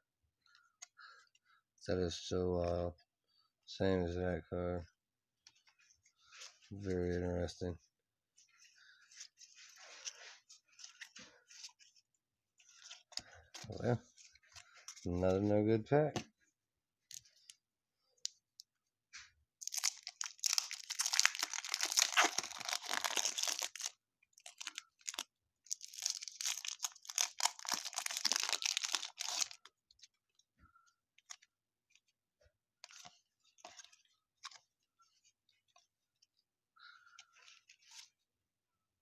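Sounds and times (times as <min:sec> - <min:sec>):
wrapper tearing and crinkling: 0:19.6 - 0:29.6.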